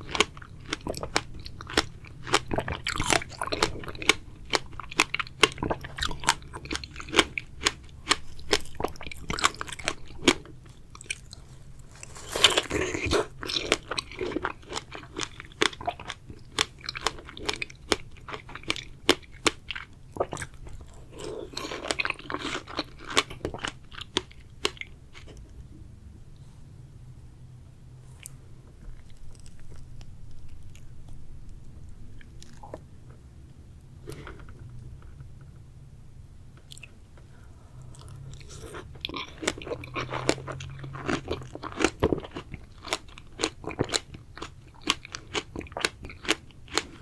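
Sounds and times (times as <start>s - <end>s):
wet chewing with mouth clicks: 0.0s - 25.6s, 37.8s - 47.0s.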